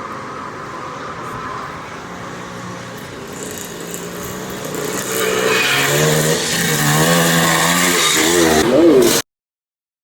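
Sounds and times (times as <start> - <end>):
motocross bike engines revving: 3.1 - 9.2.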